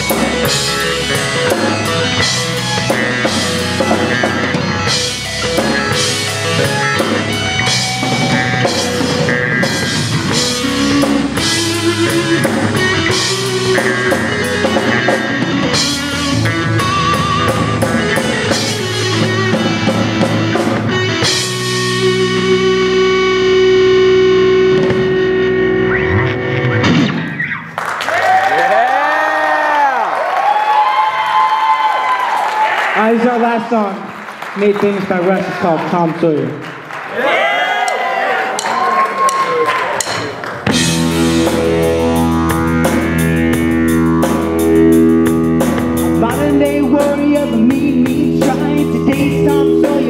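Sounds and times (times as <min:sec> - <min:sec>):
drum kit: 0:00.0 - 0:27.6, 0:37.8 - 0:50.0
live rock band playing: 0:00.0 - 0:27.9, 0:37.9 - 0:50.0
electric guitar: 0:00.0 - 0:30.0, 0:40.1 - 0:50.0.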